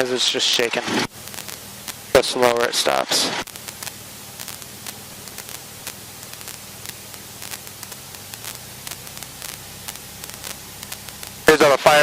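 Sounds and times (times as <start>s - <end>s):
steady hiss: 0.4s - 12.0s
faint irregular clicks: 1.2s - 2.1s, 3.4s - 11.6s.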